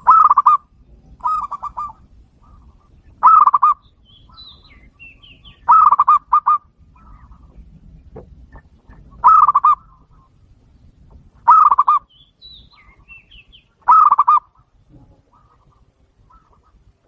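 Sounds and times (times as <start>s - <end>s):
dove cooing: 0.0s - 7.7s, 8.5s - 10.4s, 11.4s - 12.1s, 13.8s - 16.9s.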